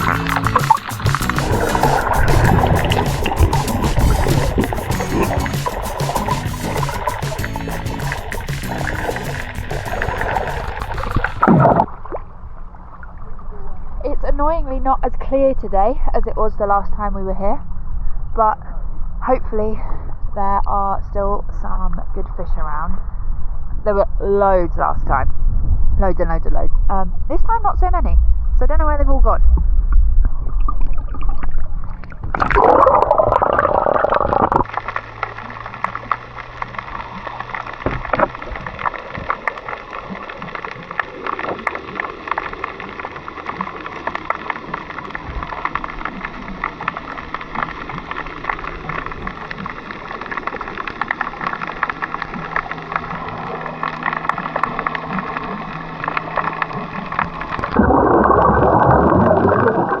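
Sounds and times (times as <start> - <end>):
muffled underwater hiss: 0.0 - 11.9, 32.0 - 60.0
water bubbling and splashing: 0.0 - 14.0, 29.6 - 60.0.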